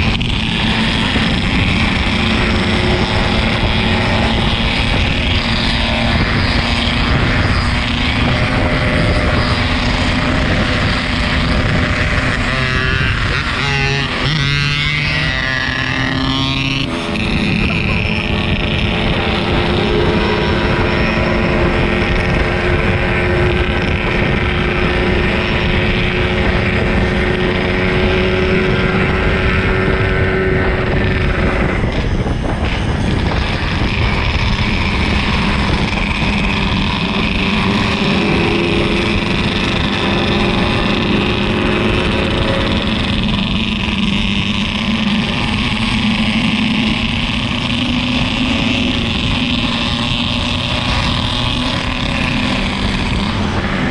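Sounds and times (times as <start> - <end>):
two-stroke motorcycle engine running: 0.0 - 53.9
wind noise on microphone: 0.0 - 53.9.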